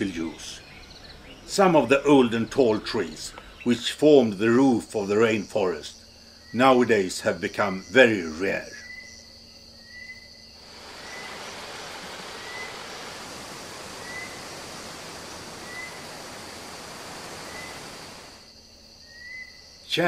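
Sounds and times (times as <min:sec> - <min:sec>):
insects buzzing: 0:00.0 - 0:20.0
rushing hiss: 0:10.6 - 0:18.6.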